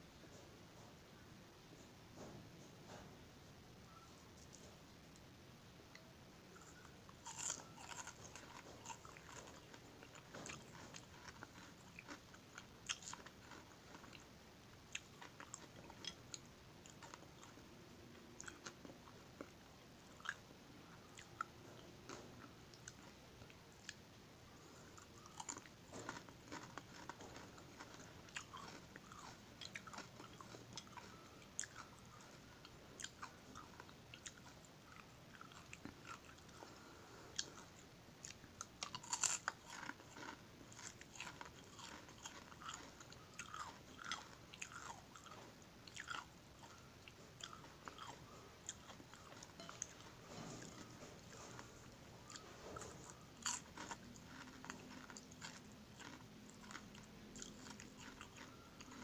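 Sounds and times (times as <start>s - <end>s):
crunching crispy fried fish: 6.7s - 14.2s, 25.0s - 32.3s, 38.8s - 46.8s, 47.4s - 59.0s.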